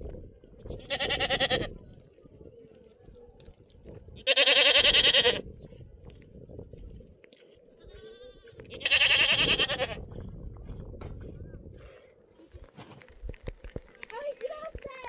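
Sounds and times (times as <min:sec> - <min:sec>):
goat bleating: 0:00.7 - 0:01.8, 0:04.2 - 0:05.4, 0:07.8 - 0:10.0.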